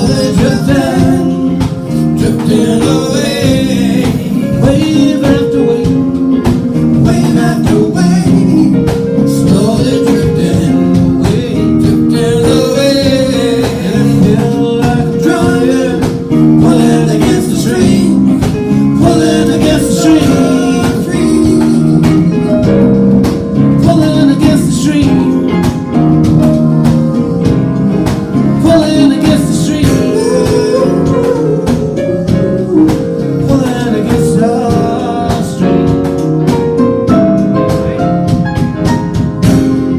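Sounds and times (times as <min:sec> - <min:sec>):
person singing: 0:00.0 - 0:36.8
band playing: 0:00.0 - 0:39.9.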